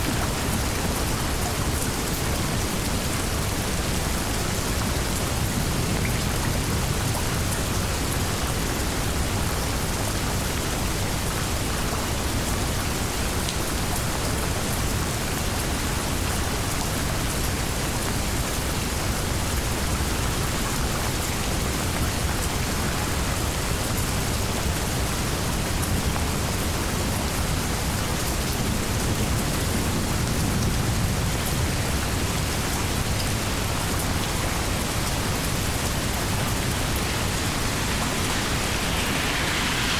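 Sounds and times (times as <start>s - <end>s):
heavy rain hiss: 0.0s - 39.9s
low rumble of thunder: 28.6s - 39.9s.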